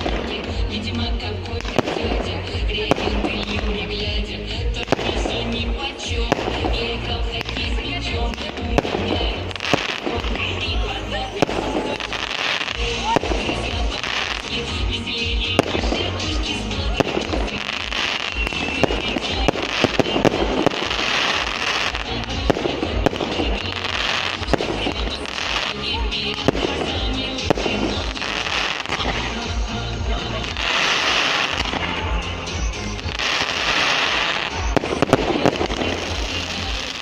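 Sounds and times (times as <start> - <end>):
fireworks bangs and crackling: 0.0 - 37.0
music playing: 0.0 - 37.0.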